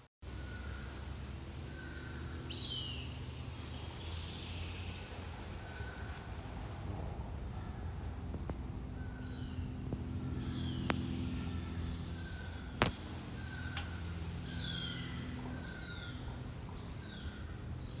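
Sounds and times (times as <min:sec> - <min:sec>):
steady low hum: 0:00.2 - 0:18.0.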